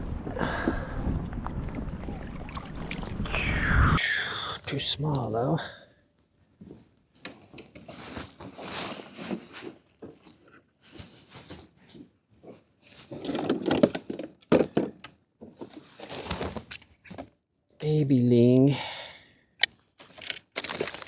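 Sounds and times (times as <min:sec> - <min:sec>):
rustling and scraping: 0:06.6 - 0:14.3, 0:15.4 - 0:17.3.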